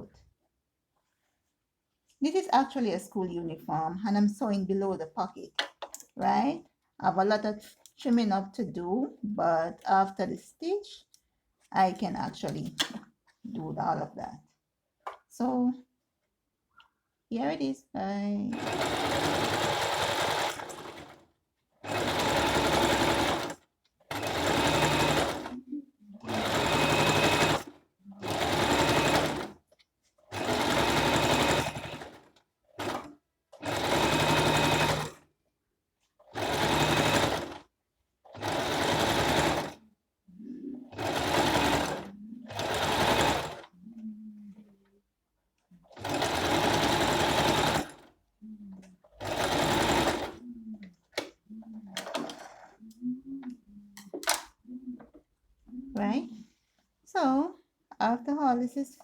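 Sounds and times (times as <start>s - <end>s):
sewing machine stitching: 18.5s - 25.6s, 26.3s - 29.6s, 30.3s - 35.2s, 36.2s - 37.7s, 38.3s - 39.8s, 40.8s - 43.7s, 45.8s - 48.1s, 49.0s - 50.4s, 51.1s - 52.9s.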